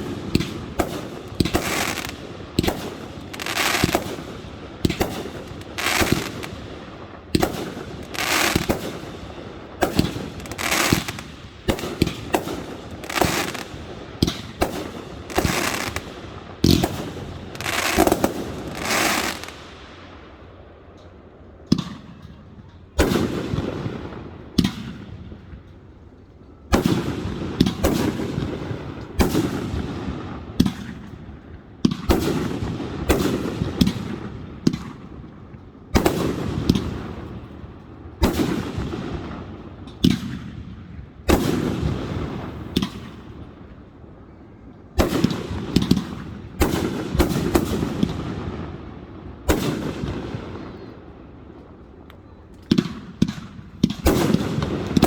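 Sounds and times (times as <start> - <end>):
fireworks bangs: 0.0 - 19.8, 45.0 - 51.7, 52.6 - 55.0.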